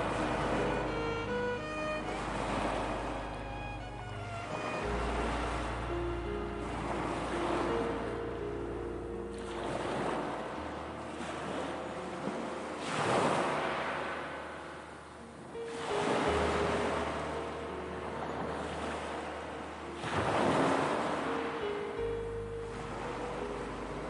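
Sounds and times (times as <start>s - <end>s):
ocean waves washing: 0.0s - 24.0s
soft music pad: 0.0s - 24.0s.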